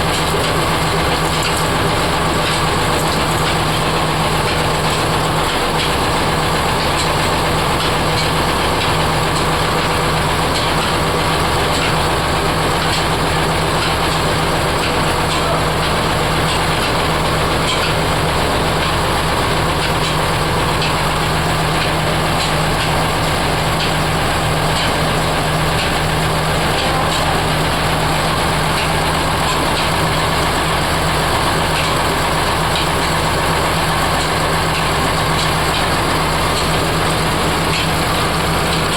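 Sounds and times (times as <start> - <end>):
machine drone with low hum: 0.0 - 38.9.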